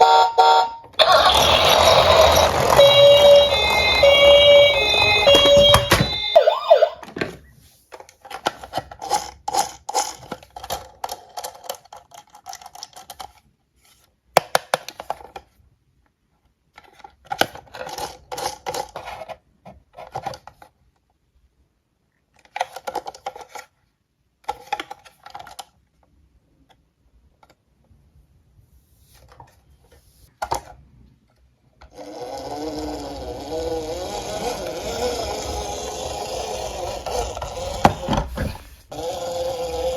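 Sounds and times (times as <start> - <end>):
toy cars clattering: 1.0 - 6.4, 7.0 - 13.5, 16.7 - 20.8, 22.3 - 23.8, 24.4 - 25.8, 31.8 - 39.9.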